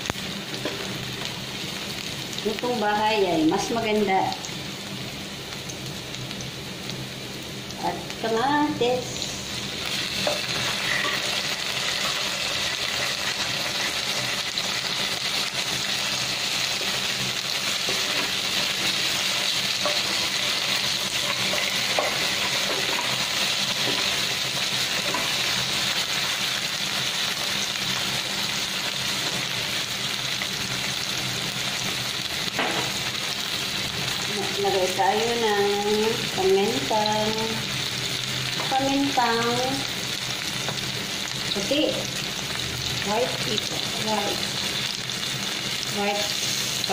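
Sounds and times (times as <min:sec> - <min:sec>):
vegetables sizzling in oil: 0:00.0 - 0:46.9
wooden spatula scraping pan: 0:10.2 - 0:11.4.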